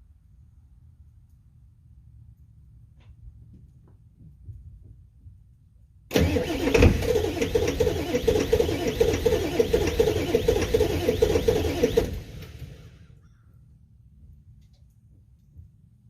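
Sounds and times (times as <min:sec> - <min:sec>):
diesel engine chugging: 0:06.1 - 0:13.1.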